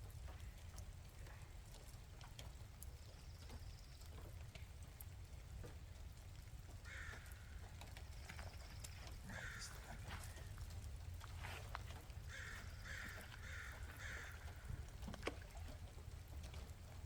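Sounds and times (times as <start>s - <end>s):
light rain drips: 0.0s - 17.0s
low steady rumble: 0.0s - 17.0s
crow cawing: 6.8s - 7.6s, 9.3s - 10.5s, 12.3s - 14.7s.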